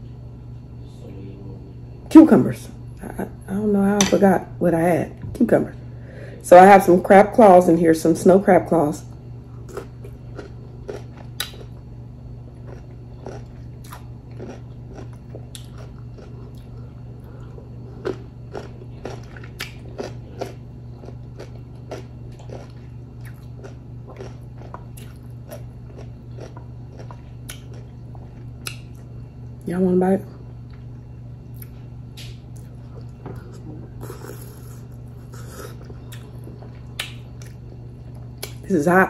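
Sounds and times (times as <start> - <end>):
steady low hum: 0.0 - 39.0
chewing crisp cucumber: 9.6 - 11.8, 12.5 - 29.1, 31.5 - 31.8, 32.5 - 38.7.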